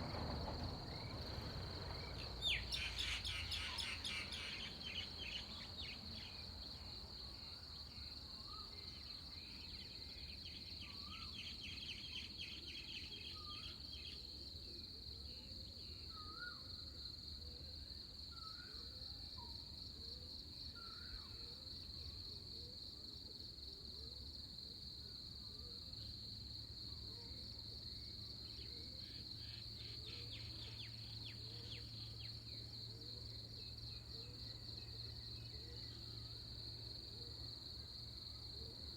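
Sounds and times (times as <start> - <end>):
bird calls: 1.9 - 6.0
curling whistled bird notes: 1.9 - 6.0.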